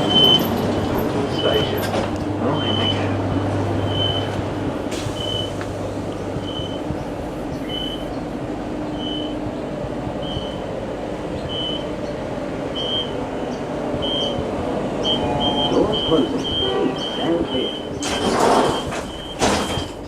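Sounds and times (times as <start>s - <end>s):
electric train rumbling: 0.0s - 20.0s
low hum: 2.2s - 18.1s.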